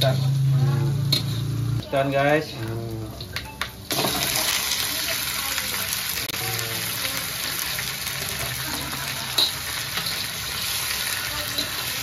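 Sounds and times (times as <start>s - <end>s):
fish sizzling in hot oil: 3.8s - 12.0s
spatula stirring in a wok: 6.8s - 12.0s.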